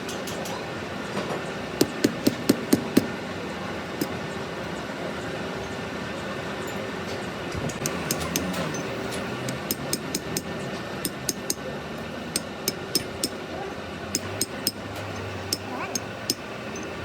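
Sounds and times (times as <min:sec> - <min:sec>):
low workshop hum: 0:00.0 - 0:17.0
metal taps and clinks: 0:06.7 - 0:11.6, 0:12.3 - 0:13.4, 0:14.1 - 0:17.0.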